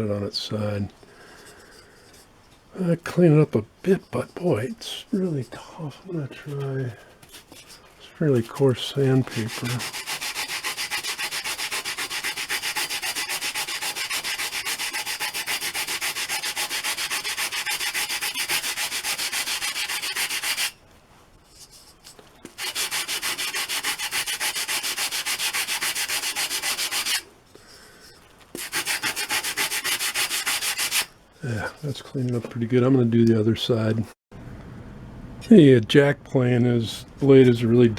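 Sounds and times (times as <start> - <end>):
sandpaper rubbing on wood: 8.3 - 20.8, 22.5 - 27.2, 28.6 - 31.1.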